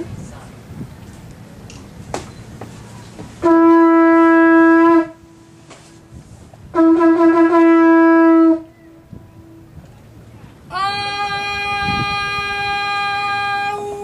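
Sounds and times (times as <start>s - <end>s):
horn blasts: 3.4s - 6.1s, 6.7s - 9.7s.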